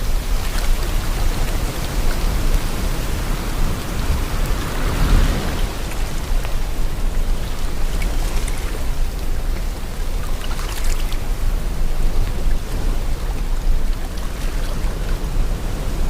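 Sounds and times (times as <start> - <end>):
wind blowing: 0.0 - 10.3
sea water washing: 0.0 - 16.0.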